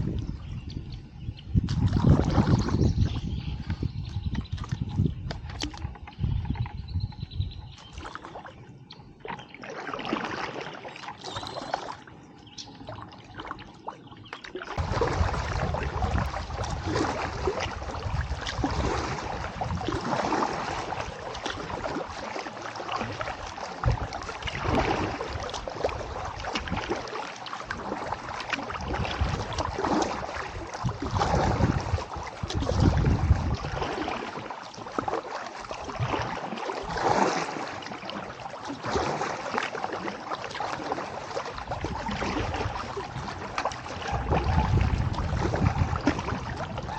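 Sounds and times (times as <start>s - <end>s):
kayak paddle splashing in water: 1.6s - 6.6s, 7.7s - 8.6s, 9.2s - 46.9s
low rumble: 14.8s - 19.0s.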